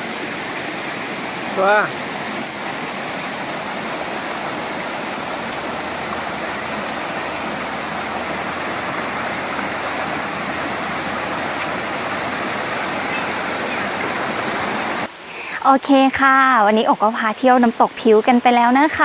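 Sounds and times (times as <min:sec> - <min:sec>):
water rushing over rocks: 0:00.0 - 0:15.1.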